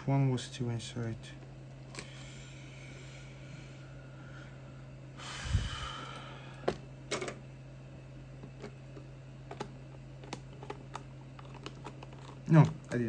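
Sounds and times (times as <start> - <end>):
steady low hum: 0.0 - 13.0
plastic casing rustle: 9.5 - 13.0.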